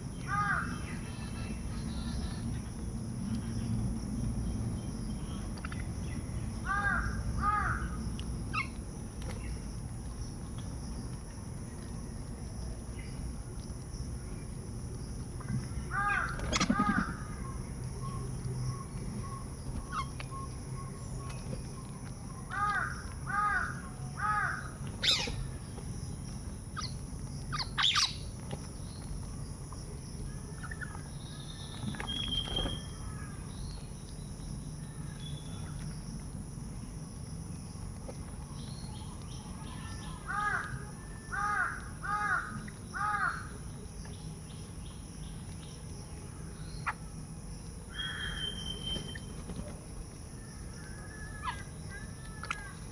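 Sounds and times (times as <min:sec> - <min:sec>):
crows cawing: 0:00.2 - 0:00.8, 0:06.6 - 0:08.0, 0:15.9 - 0:17.3, 0:22.5 - 0:25.5, 0:40.3 - 0:43.5.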